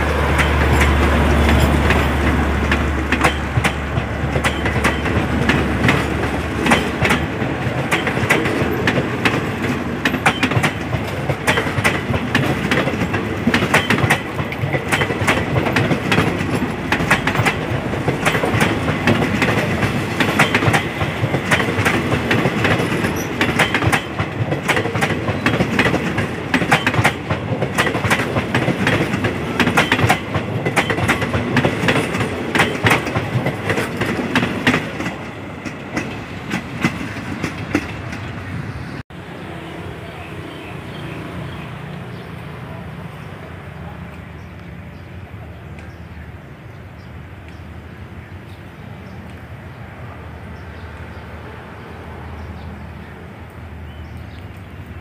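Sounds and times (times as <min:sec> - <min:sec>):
train wheels clattering: 0:00.0 - 0:38.6.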